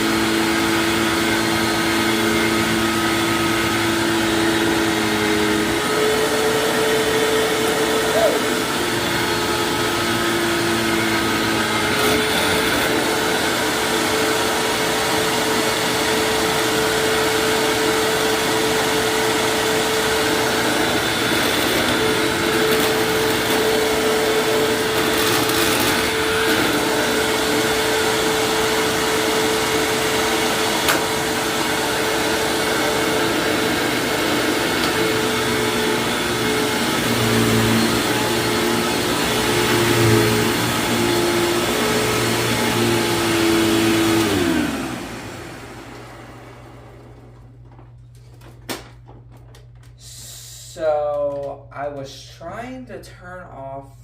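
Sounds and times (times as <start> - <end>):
vacuum cleaner running: 0.0 - 48.0.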